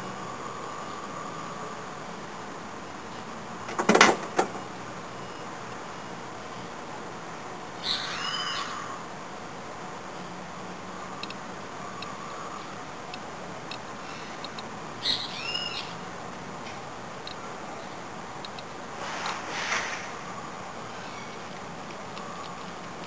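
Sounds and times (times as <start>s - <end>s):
background hiss: 0.0s - 23.0s
bird call: 7.8s - 9.0s, 14.0s - 16.0s
faint light ticks: 11.2s - 11.4s, 14.4s - 14.7s, 16.6s - 17.4s, 18.4s - 18.7s
short rushing noise: 19.0s - 20.2s.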